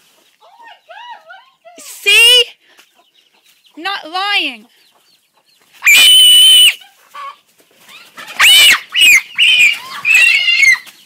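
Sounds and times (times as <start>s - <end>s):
chicken squawking: 5.8s - 11.0s.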